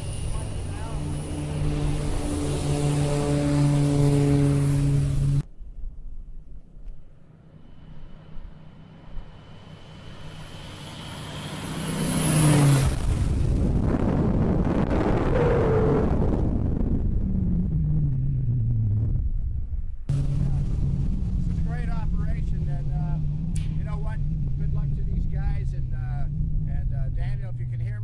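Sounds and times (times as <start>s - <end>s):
loud sustained rumble: 0.0s - 6.5s, 7.3s - 28.0s
propeller airplane engine droning: 0.0s - 28.0s.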